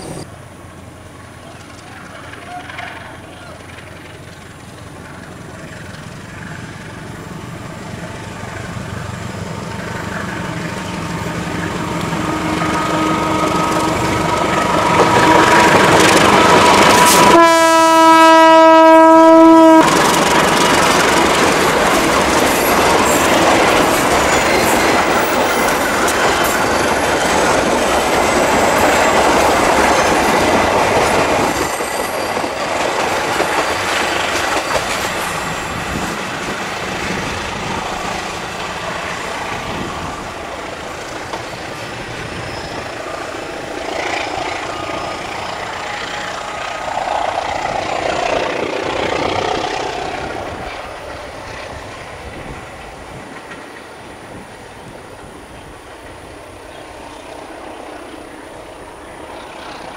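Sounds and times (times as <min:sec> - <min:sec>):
train engine and wheel noise: 0:00.0 - 0:59.9
locomotive horn blast: 0:11.7 - 0:15.9, 0:16.5 - 0:20.0.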